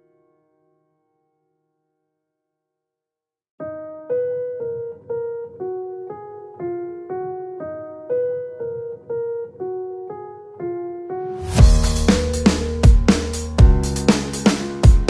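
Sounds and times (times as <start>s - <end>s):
slow piano melody: 3.6s - 15.0s
electronic track with heavy drums: 11.4s - 15.0s.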